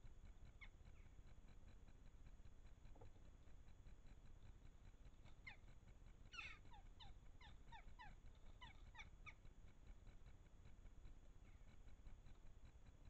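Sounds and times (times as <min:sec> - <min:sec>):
crow yelping calls: 0:06.3 - 0:09.4.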